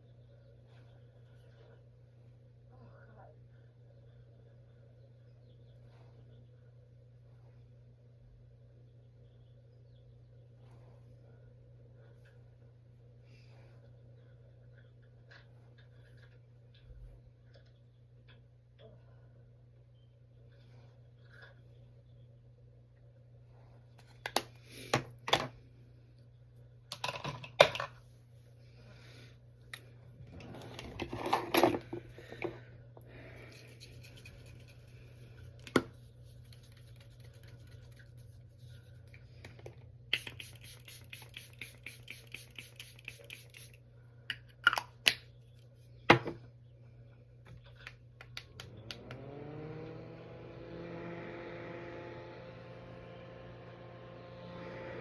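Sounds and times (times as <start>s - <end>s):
rapid scratchy strokes: 33.6s - 39.1s, 40.3s - 43.7s
steady rising hum: 48.7s - 55.0s.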